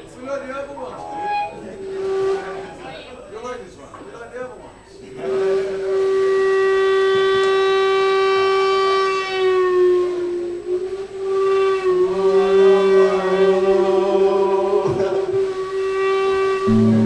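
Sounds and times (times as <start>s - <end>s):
long held musical note: 16.6s - 17.0s
lower musical note: 16.6s - 17.0s.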